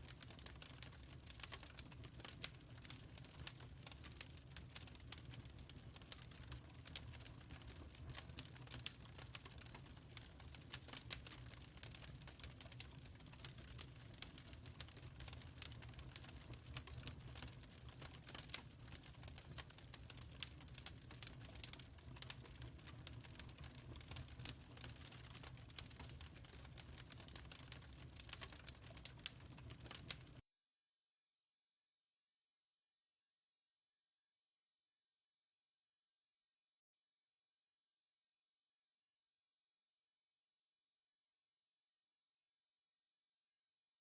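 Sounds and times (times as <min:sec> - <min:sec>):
wood fire crackling: 0:00.0 - 0:30.4.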